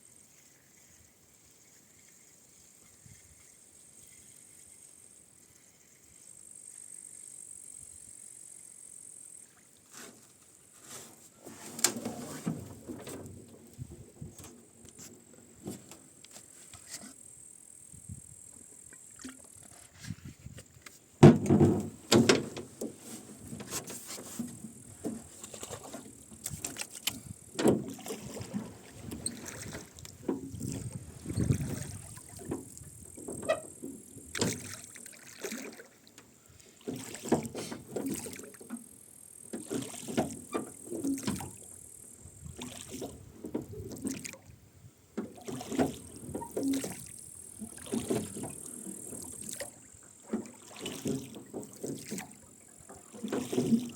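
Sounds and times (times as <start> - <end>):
oars creaking in oarlocks: 9.9 - 17.2, 18.9 - 44.5, 45.1 - 53.9
oars splashing water: 18.7 - 20.2, 20.9 - 53.9.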